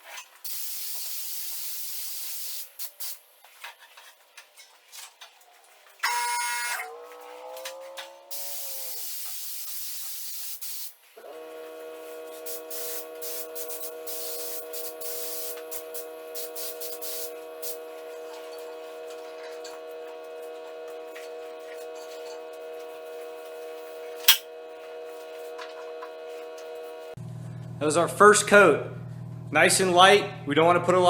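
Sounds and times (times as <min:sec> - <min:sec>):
paint spray gun hissing: 0:00.4 - 0:03.2, 0:08.3 - 0:27.2
machine hum: 0:11.2 - 0:30.5.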